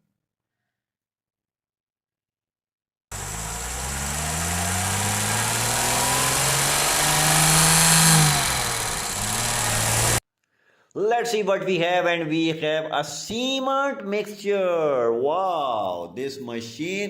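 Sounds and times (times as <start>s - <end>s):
truck engine running: 3.1s - 10.2s.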